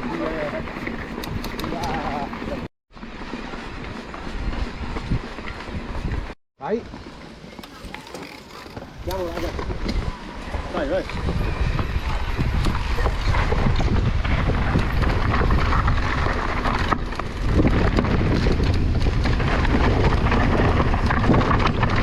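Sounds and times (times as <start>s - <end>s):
bike rattling over rough ground: 0.0s - 22.0s
bike tyres crunching: 0.0s - 22.0s
wind buffeting microphone: 3.6s - 6.4s, 8.9s - 22.0s.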